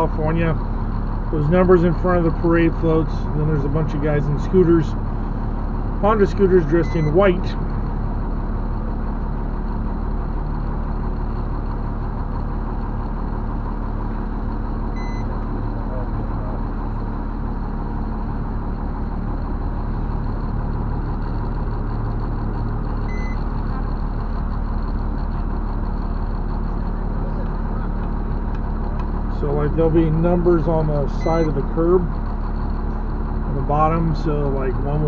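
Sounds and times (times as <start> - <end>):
truck diesel engine droning: 0.0 - 35.0
short high electronic beeps: 6.8 - 7.2.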